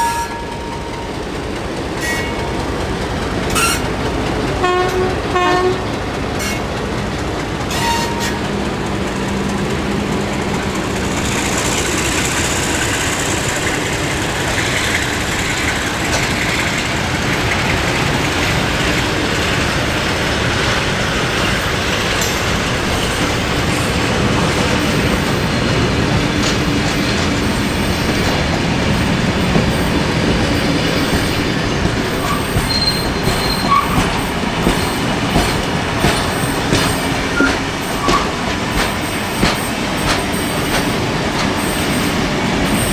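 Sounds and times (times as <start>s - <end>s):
train wheels rumbling and clacking: 0.0s - 42.9s
high wheel squeal: 3.5s - 3.9s, 7.7s - 8.4s, 30.6s - 35.1s, 36.4s - 38.5s
train horn blast: 3.5s - 3.9s, 4.6s - 6.6s, 7.7s - 8.5s.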